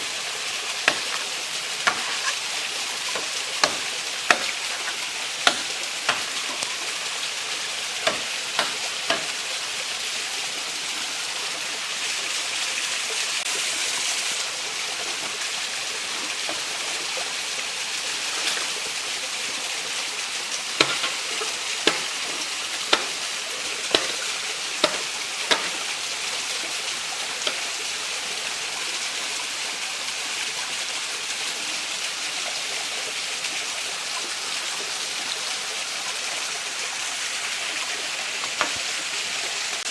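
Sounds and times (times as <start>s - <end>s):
steady hiss: 0.0s - 30.7s
sharp knocks: 3.2s - 6.6s, 8.0s - 9.3s, 21.8s - 23.2s, 24.8s - 25.8s.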